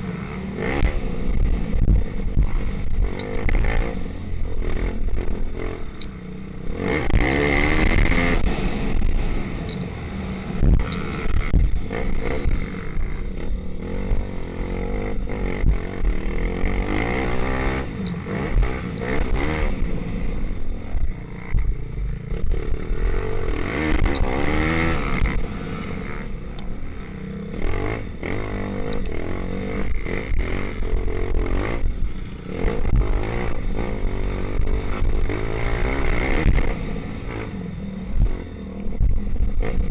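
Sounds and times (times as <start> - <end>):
pit bike engine revving: 0.0 - 39.9.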